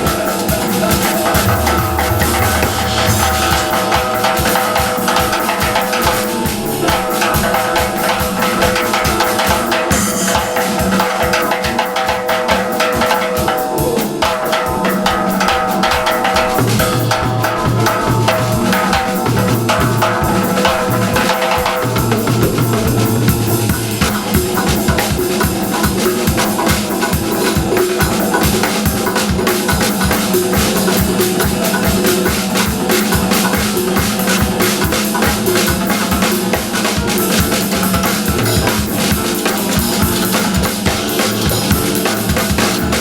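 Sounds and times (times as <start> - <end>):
band music: 0.0 - 43.0
driving drum kit beat: 0.0 - 43.0.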